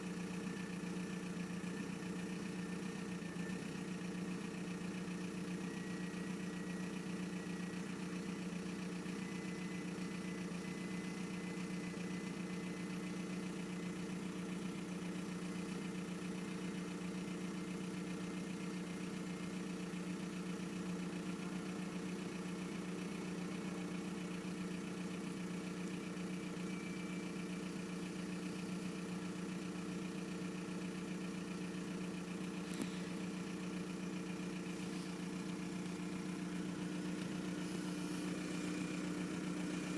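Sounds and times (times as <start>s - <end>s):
diesel engine idling: 0.0s - 39.9s
click: 32.7s - 32.9s.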